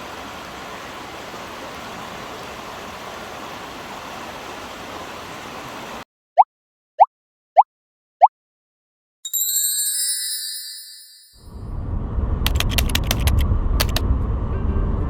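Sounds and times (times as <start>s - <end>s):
steady rushing noise: 11.5s - 15.0s.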